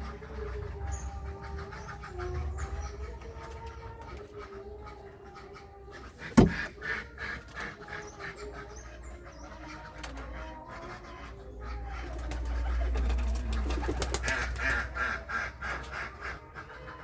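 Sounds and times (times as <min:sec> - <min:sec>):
pigeons cooing: 0:00.0 - 0:17.0
sharp knock: 0:06.4 - 0:06.7.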